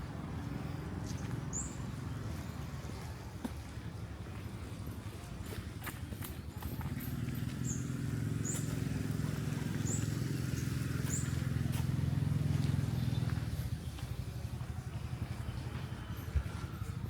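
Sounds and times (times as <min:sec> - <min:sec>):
vehicle engine passing: 0:06.7 - 0:17.0.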